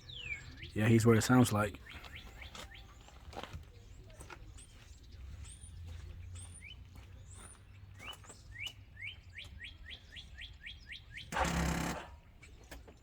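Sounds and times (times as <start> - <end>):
bird chirping: 0.0 - 13.0
engine cranking: 11.3 - 12.9.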